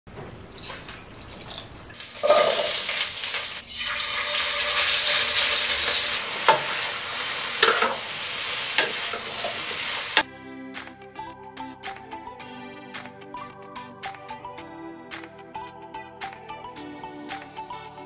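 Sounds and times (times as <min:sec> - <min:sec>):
food sizzling in hot oil: 0:01.9 - 0:10.2.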